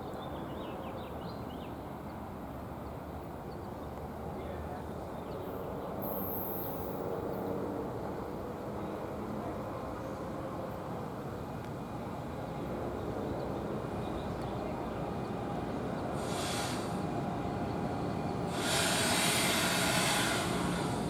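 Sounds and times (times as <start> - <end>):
train rumbling: 9.7 - 21.0
air hiss bursts: 16.2 - 17.0, 18.5 - 21.0.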